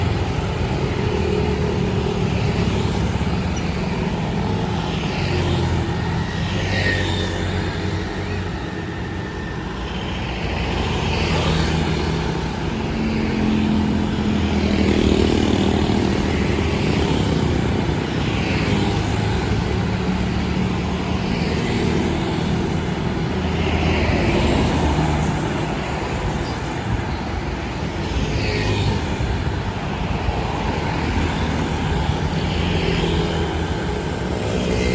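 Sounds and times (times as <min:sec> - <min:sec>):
traffic engines: 0:00.0 - 0:34.9
vehicles passing: 0:00.0 - 0:34.9.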